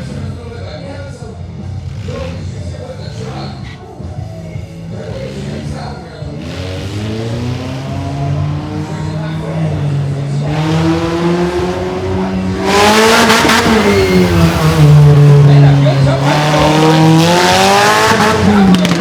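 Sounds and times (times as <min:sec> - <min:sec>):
mini monster truck engine revving: 0:05.1 - 0:08.9, 0:10.5 - 0:19.0.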